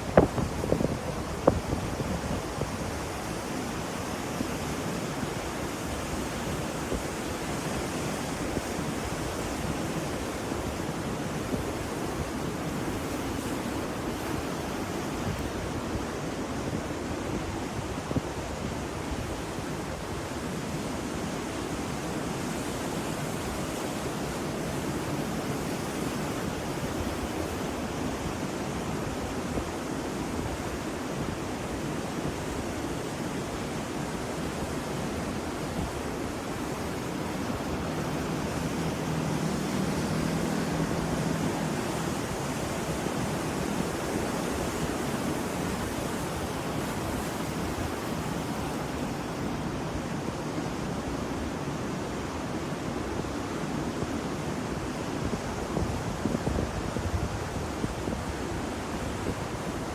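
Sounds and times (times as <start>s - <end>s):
ocean surf rushing: 0.0s - 59.9s.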